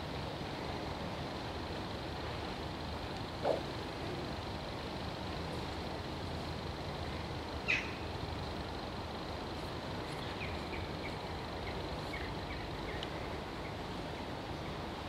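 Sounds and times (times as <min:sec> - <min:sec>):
birds calling: 0:07.6 - 0:08.1.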